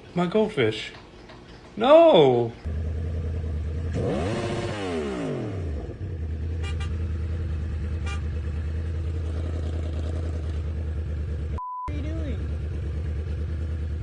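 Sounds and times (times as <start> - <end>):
vehicle engine humming: 2.6 - 14.0
short beep: 11.6 - 12.0.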